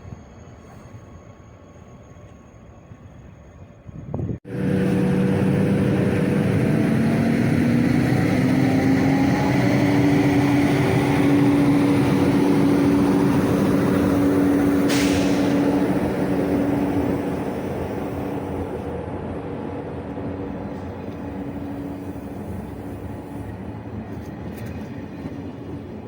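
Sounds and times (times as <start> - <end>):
train running noise: 0.0 - 26.0
train motor whine rising: 4.5 - 24.7.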